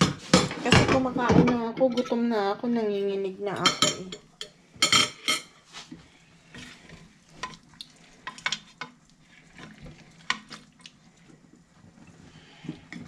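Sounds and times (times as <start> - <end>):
utensil scraping a cooking pot: 3.6 - 13.0.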